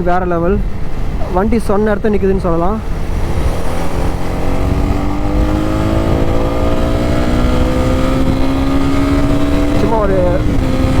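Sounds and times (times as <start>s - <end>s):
steady low rumble: 0.0s - 11.0s
motorcycle engine rising in pitch: 2.6s - 11.0s.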